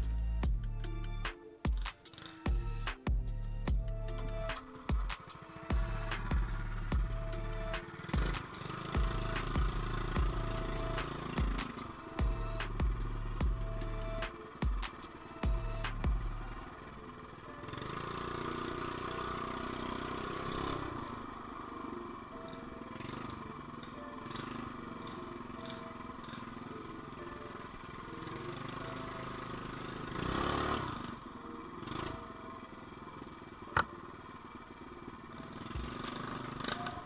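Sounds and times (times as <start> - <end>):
mini bike engine running: 7.8 - 12.0, 16.5 - 37.0.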